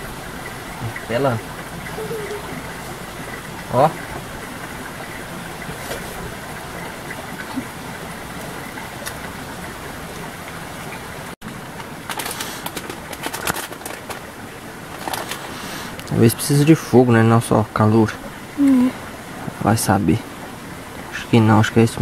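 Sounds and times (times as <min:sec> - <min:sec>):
campfire crackling and popping: 0:11.5 - 0:16.2.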